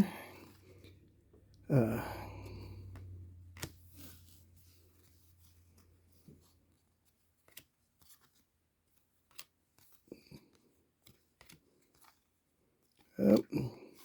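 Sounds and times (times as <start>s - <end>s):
trading cards clicking and sliding: 2.4s - 6.3s, 7.4s - 12.3s.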